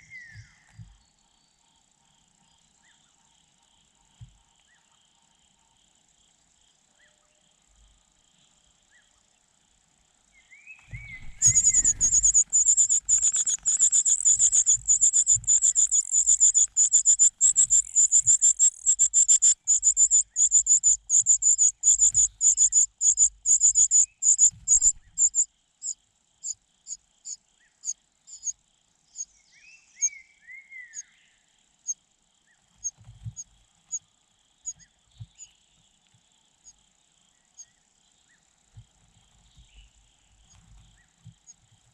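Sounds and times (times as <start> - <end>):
short downslurred bird calls: 10.7 - 25.4
nestling birds chirping: 10.8 - 26.6.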